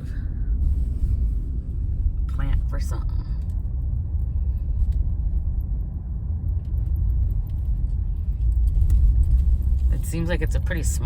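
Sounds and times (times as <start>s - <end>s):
car road rumble: 0.0s - 11.0s.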